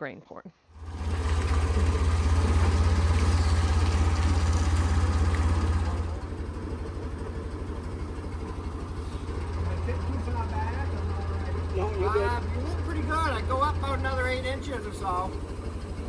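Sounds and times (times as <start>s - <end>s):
engine running steadily: 0.7s - 16.0s.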